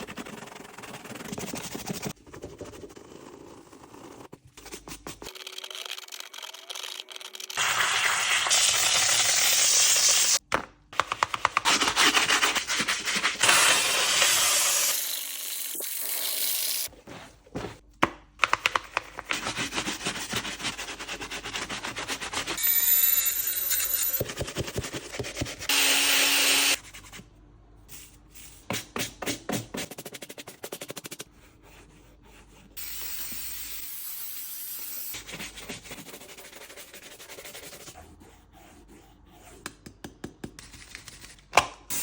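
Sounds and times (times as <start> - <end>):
brush scrubbing a shoe: 19.3 - 22.6.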